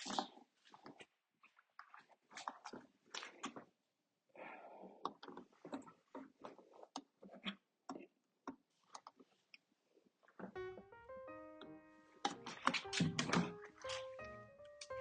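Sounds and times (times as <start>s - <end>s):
piano music: 10.6s - 15.0s.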